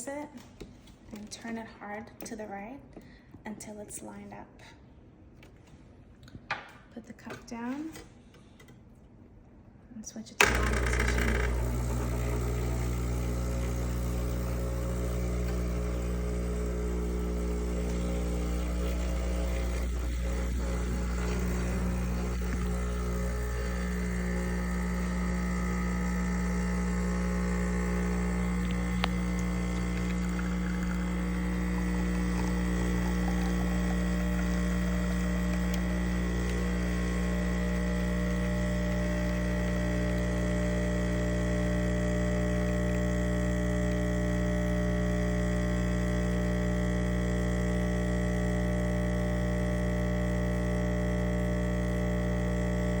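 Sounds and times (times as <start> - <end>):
espresso machine click: 10.4 - 41.7
espresso machine pump humming: 10.4 - 53.0.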